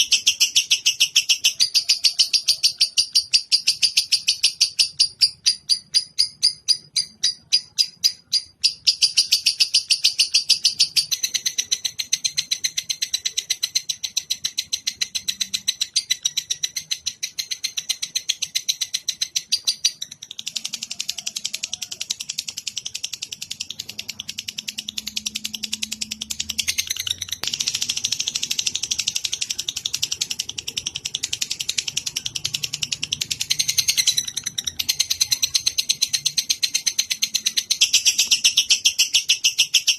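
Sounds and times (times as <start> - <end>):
songbird chirping trill: 0.0 - 39.9.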